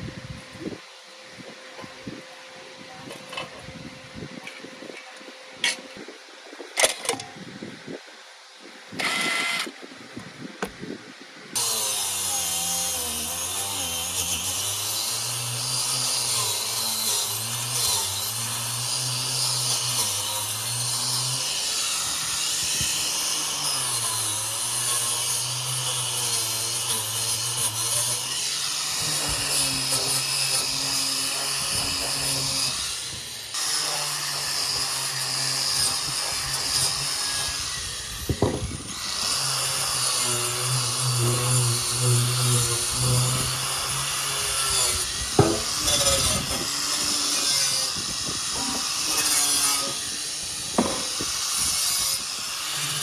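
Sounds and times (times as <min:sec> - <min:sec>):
electric power tool running: 0:09.0 - 0:09.8, 0:11.6 - 0:53.0.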